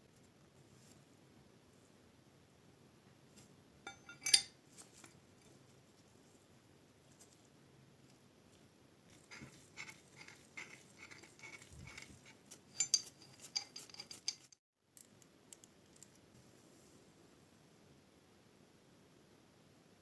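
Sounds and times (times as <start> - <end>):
metallic clicks of wrench parts: 9.3 - 14.6.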